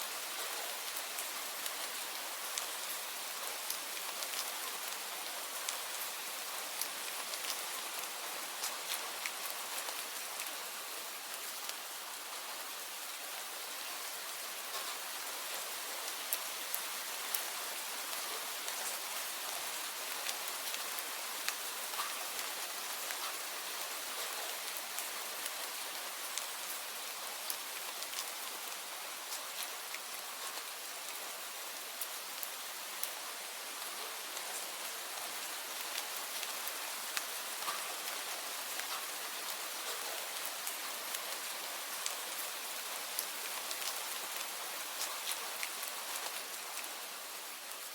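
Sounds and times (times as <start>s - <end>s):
rain falling: 0.0s - 47.9s
raindrops tapping on a surface: 37.2s - 38.2s.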